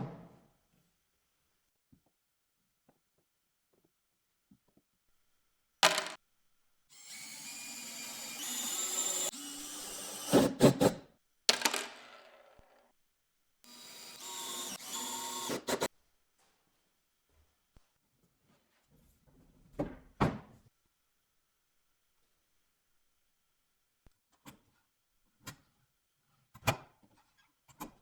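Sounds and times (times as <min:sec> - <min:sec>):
power drill running: 0:06.9 - 0:10.6, 0:13.7 - 0:15.9.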